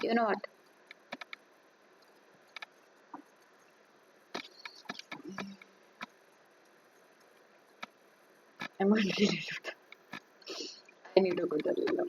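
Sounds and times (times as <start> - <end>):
computer keys and mouse clicking: 1.0 - 1.4.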